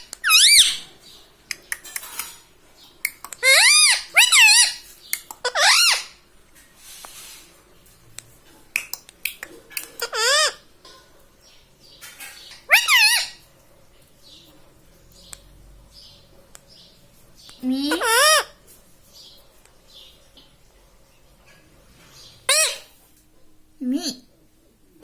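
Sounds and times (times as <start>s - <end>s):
parakeet wavering calls: 0.0s - 0.8s, 3.4s - 4.8s, 5.4s - 6.2s, 10.0s - 10.6s, 12.6s - 13.4s, 17.9s - 18.6s, 22.5s - 23.0s.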